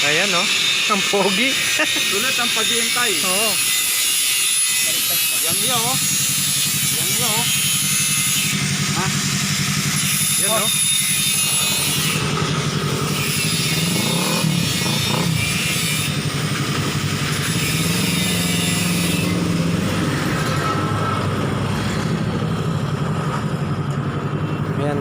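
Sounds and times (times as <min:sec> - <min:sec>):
motorcycle engine idling: 0:05.8 - 0:18.0.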